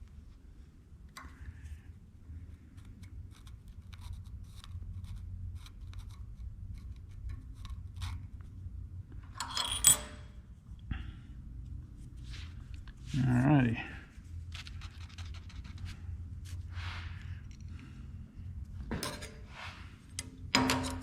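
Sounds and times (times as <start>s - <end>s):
low steady hum: 0.0s - 21.0s
metal tool clattering down: 9.4s - 10.3s
tools scratching metal plate: 9.4s - 10.3s.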